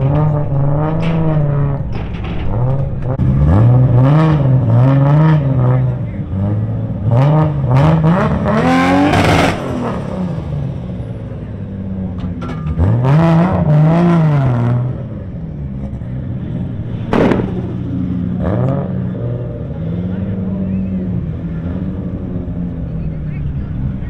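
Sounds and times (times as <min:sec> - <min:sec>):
car engines revving: 0:00.0 - 0:24.0
sharp bang: 0:17.0 - 0:18.2.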